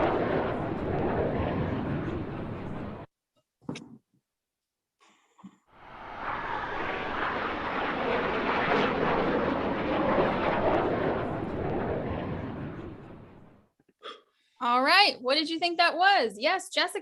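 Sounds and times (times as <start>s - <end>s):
airplane flying past: 0.0s - 3.1s, 5.8s - 13.6s.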